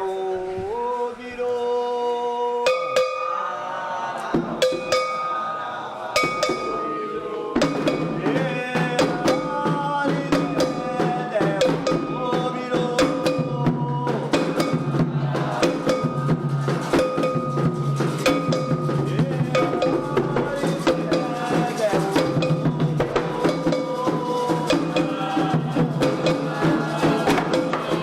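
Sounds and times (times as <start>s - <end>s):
voices singing: 0.0s - 28.0s
metal bell beating: 2.7s - 3.4s, 4.6s - 5.6s, 6.2s - 8.2s, 15.8s - 26.5s
hand drums beating: 2.7s - 3.5s, 4.3s - 28.0s.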